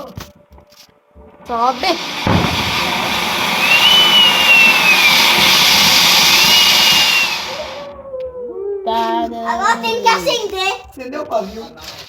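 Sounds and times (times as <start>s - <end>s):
firework hissing: 1.5s - 7.9s
faint whistle: 3.4s - 7.9s.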